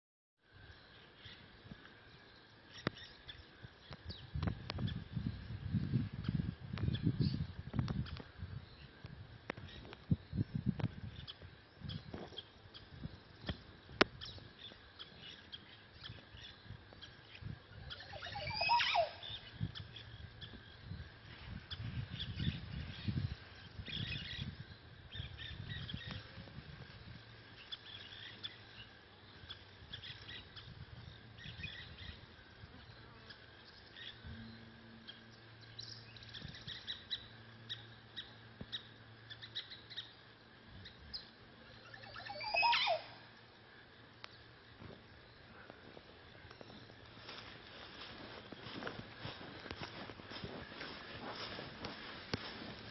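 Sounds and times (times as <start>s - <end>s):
soft bird chirps: 0.6s - 52.9s
bird call falling in pitch: 18.0s - 19.4s, 42.0s - 43.2s.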